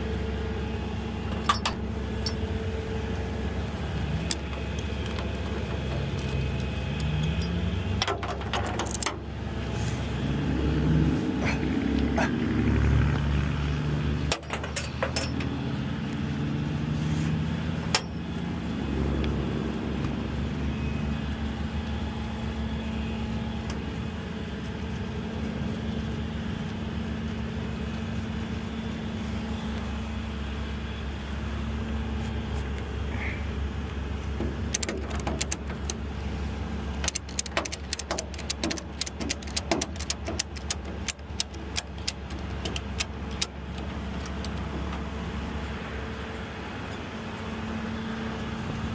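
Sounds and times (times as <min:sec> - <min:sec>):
vehicle engine running: 0:00.0 - 0:48.9
sharp clicks and rattles: 0:01.3 - 0:02.4, 0:04.2 - 0:09.3, 0:13.9 - 0:16.2, 0:34.4 - 0:36.1, 0:36.9 - 0:45.0.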